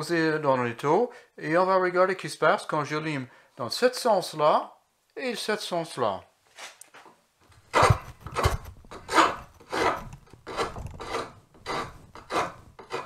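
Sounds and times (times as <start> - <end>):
hand file rasping on wood: 7.7 - 13.0.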